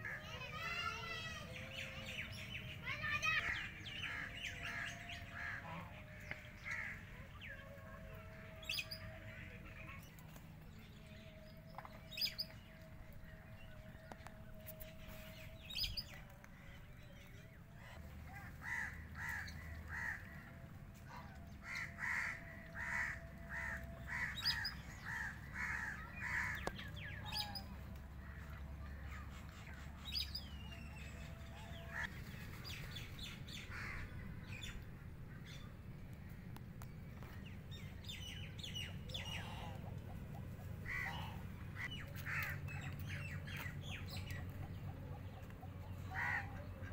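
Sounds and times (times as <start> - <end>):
small birds chirping: 35.6 - 46.9.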